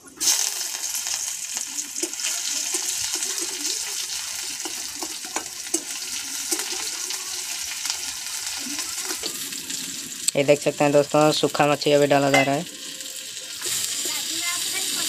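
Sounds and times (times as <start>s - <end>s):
fish sizzling in hot oil: 0.0s - 15.0s
spatula stirring in pan: 1.8s - 9.8s.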